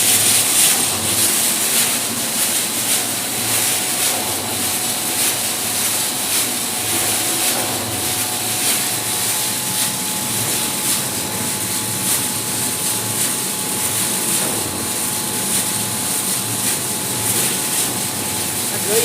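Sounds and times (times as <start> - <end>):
production line machinery running: 0.0 - 19.0.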